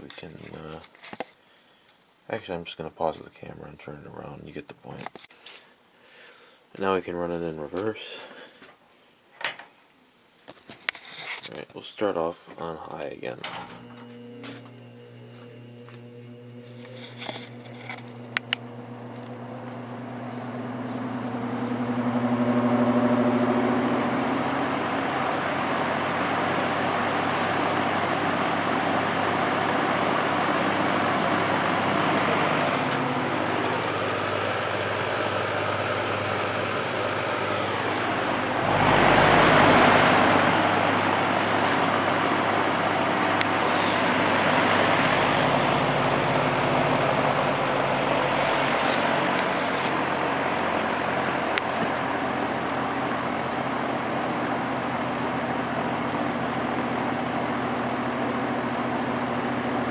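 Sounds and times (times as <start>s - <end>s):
fan motor hum and blade tone: 13.4s - 59.9s.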